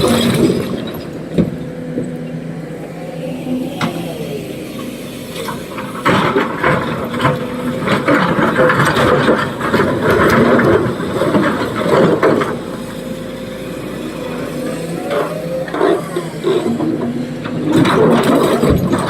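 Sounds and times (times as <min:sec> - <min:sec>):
excavator running: 0:00.0 - 0:19.0.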